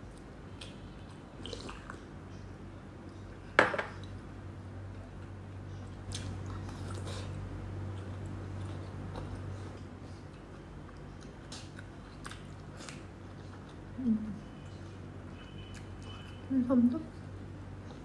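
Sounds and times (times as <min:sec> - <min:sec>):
steady low hum: 0:00.0 - 0:18.0
person chewing: 0:00.1 - 0:02.0, 0:05.2 - 0:16.4.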